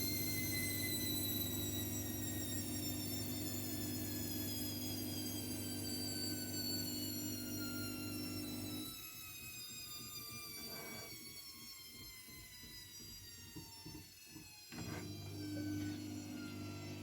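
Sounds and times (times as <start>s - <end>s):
washing machine motor hum: 0.0s - 8.8s, 14.8s - 17.0s.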